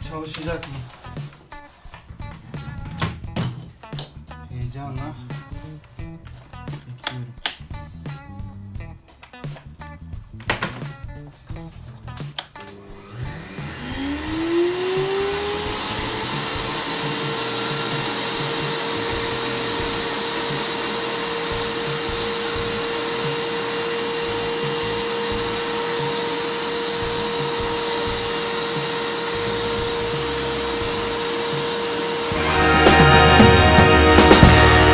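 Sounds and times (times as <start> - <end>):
vacuum cleaner motor running: 12.6 - 34.9.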